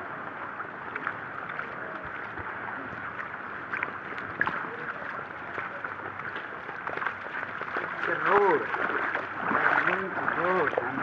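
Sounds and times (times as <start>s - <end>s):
small water splashes: 0.0s - 11.0s
rainwater running: 3.7s - 11.0s.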